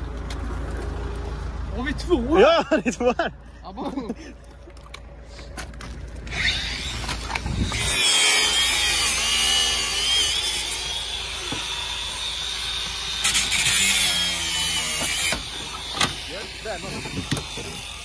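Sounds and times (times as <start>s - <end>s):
angle grinder cutting metal: 6.3s - 18.0s.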